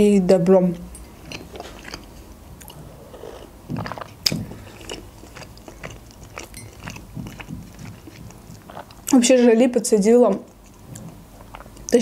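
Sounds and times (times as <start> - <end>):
soft chewing: 0.8 - 9.6, 10.2 - 12.0
mouth clicks: 1.3 - 9.2.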